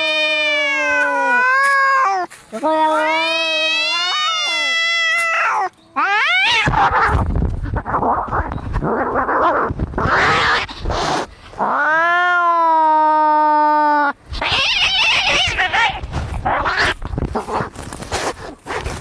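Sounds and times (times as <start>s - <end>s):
cat yowling: 0.0s - 7.2s, 11.6s - 17.0s
cats hissing and growling: 0.0s - 19.0s.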